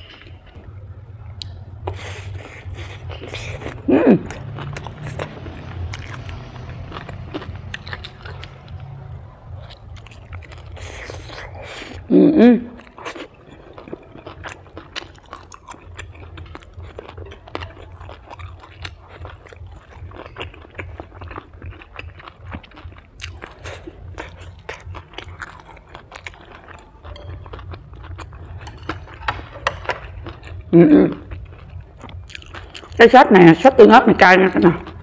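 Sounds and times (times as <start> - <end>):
low steady hum: 0.0 - 35.0
crunchy chewing: 1.4 - 12.1, 12.8 - 33.0.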